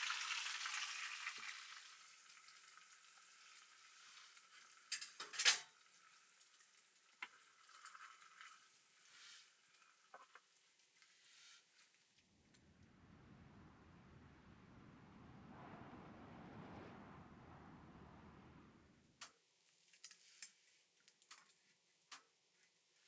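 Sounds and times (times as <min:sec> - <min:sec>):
food sizzling in a pan: 0:00.0 - 0:11.9.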